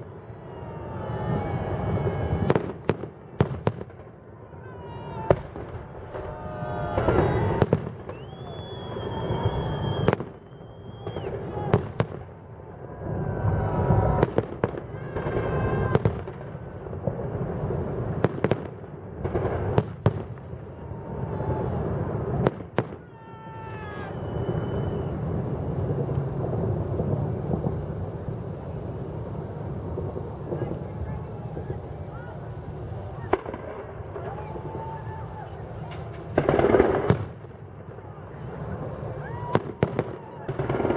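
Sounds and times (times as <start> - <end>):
firework bangs: 0.5 - 40.9
rumble of distant bursts: 24.1 - 40.9.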